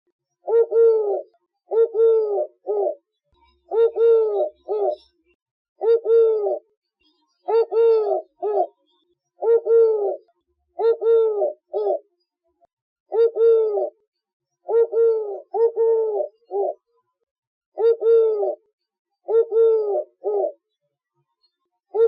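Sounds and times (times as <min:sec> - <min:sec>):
dove cooing: 0:00.5 - 0:03.0, 0:03.7 - 0:05.0, 0:05.8 - 0:06.6, 0:07.5 - 0:08.7, 0:09.4 - 0:10.2, 0:10.8 - 0:12.0, 0:13.1 - 0:14.0, 0:14.7 - 0:16.8, 0:17.8 - 0:18.6, 0:19.3 - 0:20.6.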